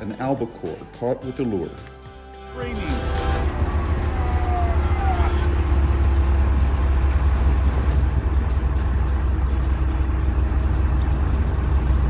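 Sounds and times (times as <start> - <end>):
boat engine running: 2.6 - 12.0.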